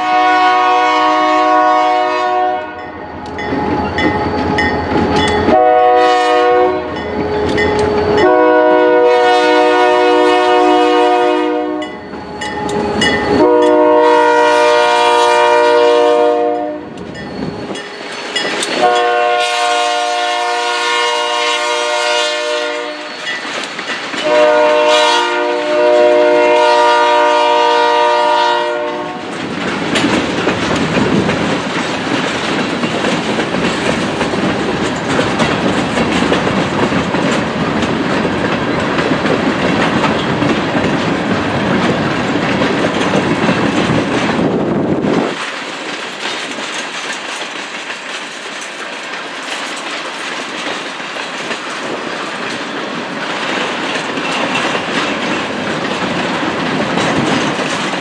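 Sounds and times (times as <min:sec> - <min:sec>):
locomotive horn: 0:00.0 - 0:03.0, 0:05.4 - 0:12.0, 0:13.3 - 0:17.0, 0:18.8 - 0:23.2, 0:24.2 - 0:29.3
train wheels clattering over joints: 0:03.2 - 0:05.7, 0:17.0 - 0:19.3, 0:23.1 - 0:24.5, 0:29.2 - 0:58.0.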